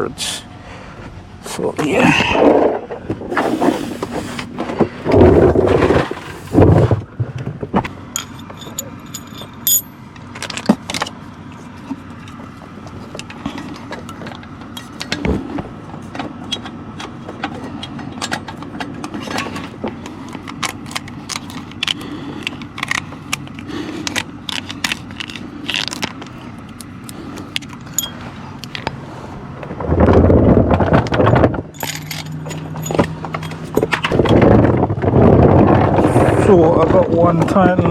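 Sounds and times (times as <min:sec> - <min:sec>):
metallic clinks and scrapes of tools: 0:08.1 - 0:12.4, 0:17.8 - 0:29.0, 0:31.2 - 0:34.4.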